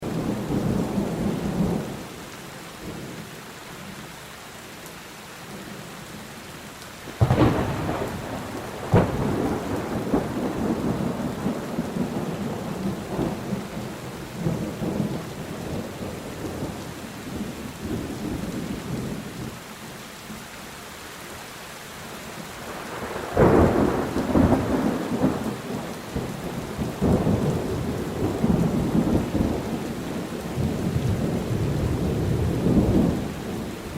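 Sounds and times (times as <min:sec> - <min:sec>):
rain on a tin roof: 0:00.0 - 0:33.9
thunder rumbling: 0:07.2 - 0:19.2, 0:22.7 - 0:33.9.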